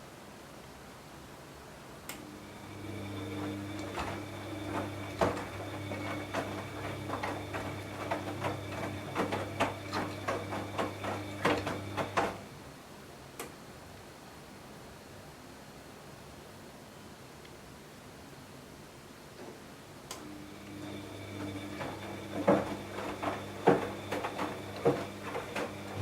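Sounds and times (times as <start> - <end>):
washing machine motor hum: 2.2 - 12.6, 20.2 - 26.0.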